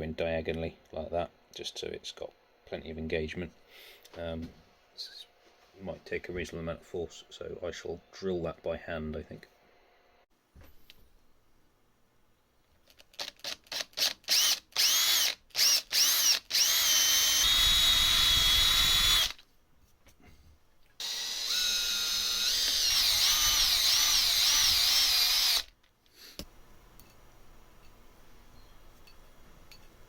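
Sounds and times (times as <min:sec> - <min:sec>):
electric drill motor whine: 0:13.7 - 0:19.4, 0:21.0 - 0:25.7.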